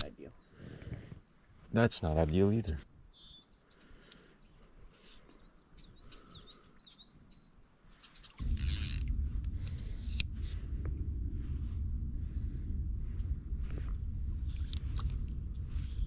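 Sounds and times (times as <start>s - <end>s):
bird chirps: 3.1s - 3.6s, 5.8s - 8.4s
steady high-pitched whine: 8.3s - 16.0s
loud low rumbling: 8.4s - 16.0s.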